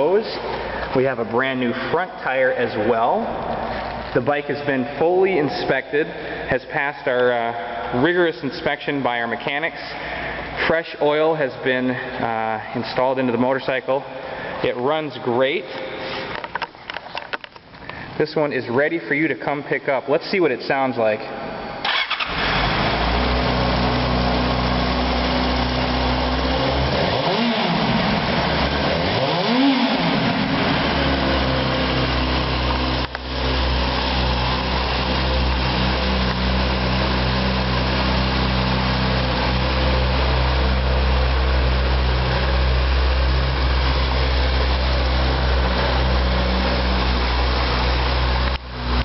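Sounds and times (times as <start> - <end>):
motorcycle engine idling: 21.9 - 49.0.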